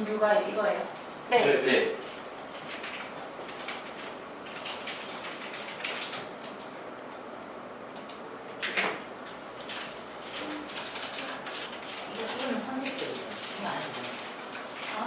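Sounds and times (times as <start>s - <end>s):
keyboard typing and clicking: 2.5s - 6.8s, 7.9s - 15.0s.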